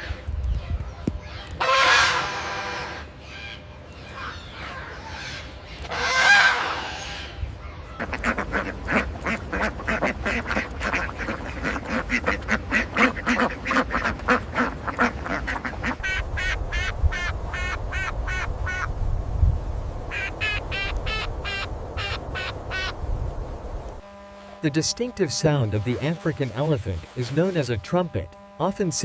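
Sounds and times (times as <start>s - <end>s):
higher-pitched quacks: 1.6s - 3.1s, 4.2s - 7.4s, 8.0s - 18.9s, 20.1s - 23.0s
ducks quacking: 1.6s - 19.0s, 20.1s - 23.0s, 24.5s - 29.0s.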